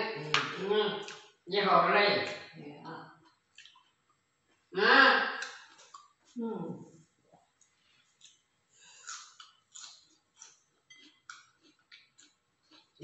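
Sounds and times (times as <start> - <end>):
person chewing food: 3.2 - 4.1, 5.4 - 6.4, 7.5 - 13.0.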